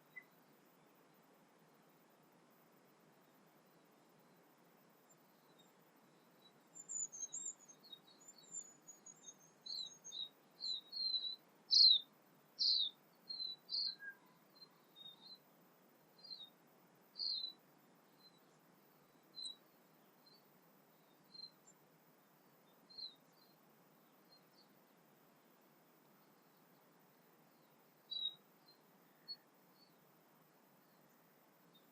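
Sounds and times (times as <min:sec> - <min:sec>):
bird chirping: 0:00.0 - 0:01.2, 0:05.1 - 0:15.4, 0:16.2 - 0:24.9, 0:26.2 - 0:30.1, 0:30.8 - 0:31.9
faint steady hiss: 0:00.0 - 0:31.9.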